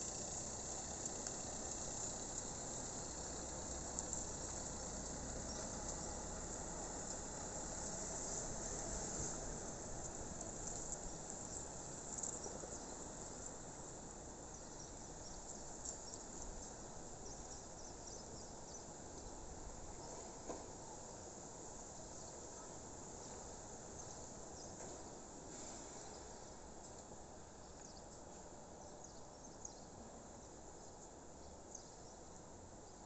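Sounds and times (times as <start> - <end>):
crickets chirping: 0.0 - 24.8
outdoor background hiss: 0.0 - 33.0.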